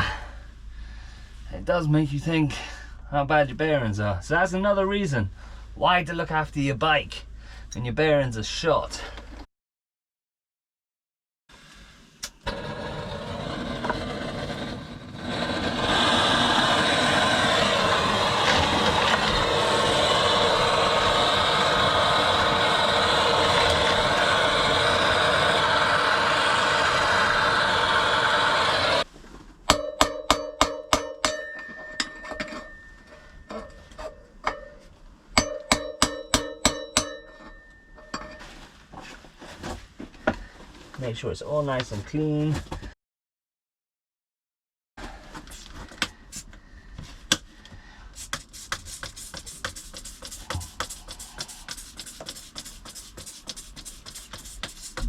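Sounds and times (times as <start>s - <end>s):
hammer tapping on metal drift: 29.7s - 38.4s.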